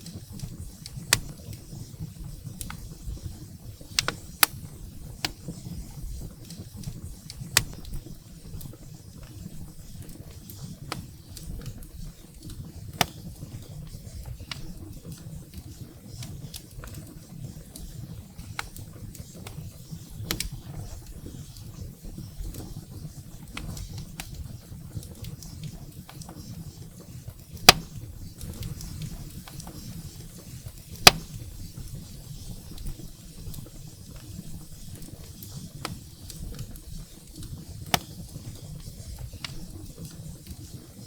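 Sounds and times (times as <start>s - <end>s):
firewood crackling and popping: 0.0s - 41.0s.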